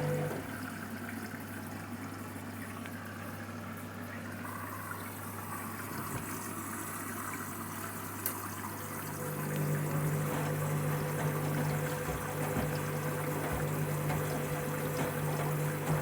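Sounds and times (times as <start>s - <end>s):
low machine hum: 0.0s - 1.1s, 8.7s - 16.0s
water splashing in washing machine: 0.0s - 16.0s.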